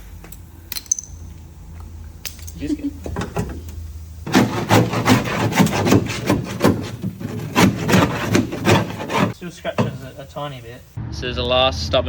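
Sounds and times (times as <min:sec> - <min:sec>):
scraper scraping sheet metal: 0:04.2 - 0:10.2.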